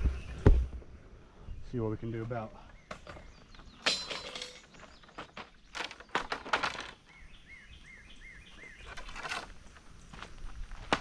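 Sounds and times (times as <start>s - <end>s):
bird calling: 2.4s - 9.4s.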